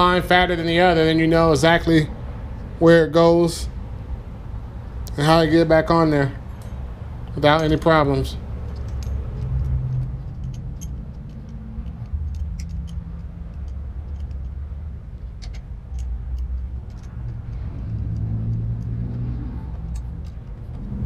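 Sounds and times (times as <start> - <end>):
low steady rumble: 0.0 - 21.0
metallic clicks of hand tools: 6.5 - 21.0.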